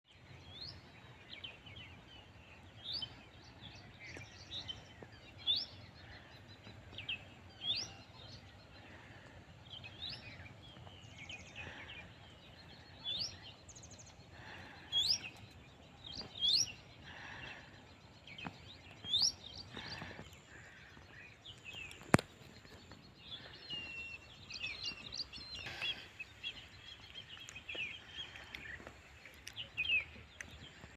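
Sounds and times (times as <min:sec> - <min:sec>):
birds chirping: 0:00.1 - 0:30.9.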